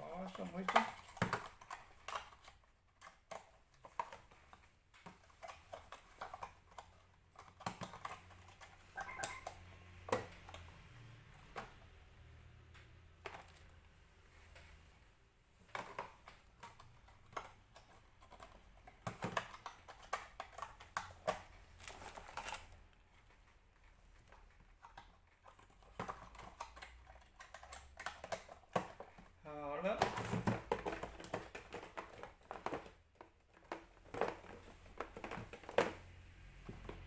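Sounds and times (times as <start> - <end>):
plastic toy pieces clicking: 24.8 - 29.2.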